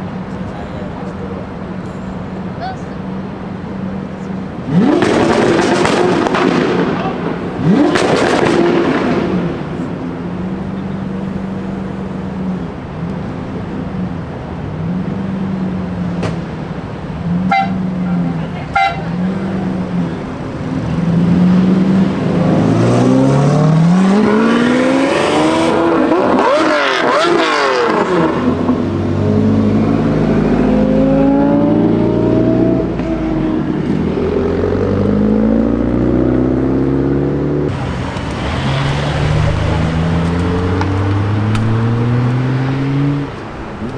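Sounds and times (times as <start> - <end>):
car engines revving and idling: 0.0 - 43.9
car accelerating away: 3.3 - 43.9.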